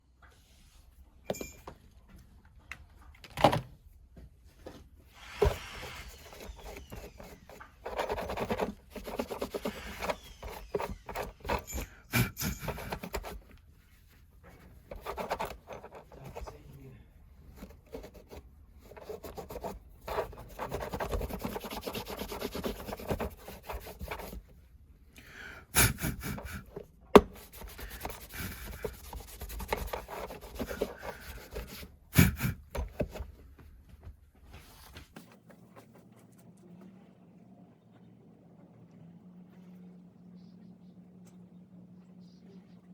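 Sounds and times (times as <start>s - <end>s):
rubbing and scraping on hard plastic: 5.1s - 24.7s, 25.8s - 33.5s.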